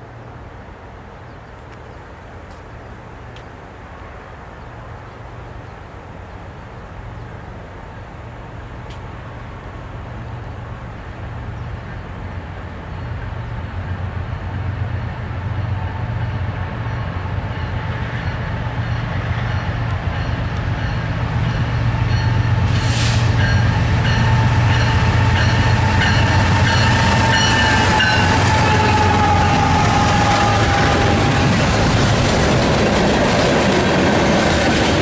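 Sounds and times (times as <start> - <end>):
diesel locomotive rumble: 4.1 - 35.0
brief hiss: 22.7 - 23.4.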